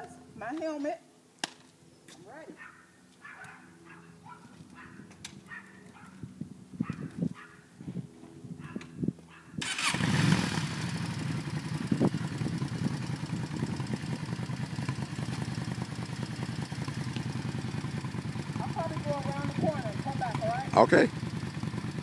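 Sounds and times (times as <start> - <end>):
motorcycle engine starting and idling: 9.6 - 22.0.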